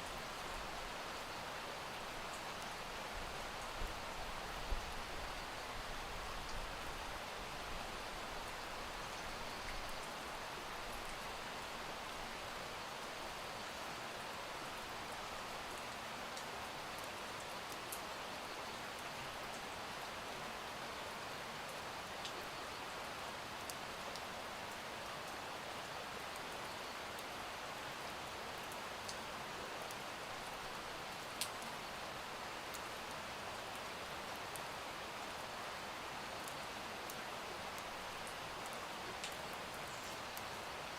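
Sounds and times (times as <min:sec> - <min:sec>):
single raindrops ticking: 0:31.4 - 0:31.7, 0:36.4 - 0:40.5.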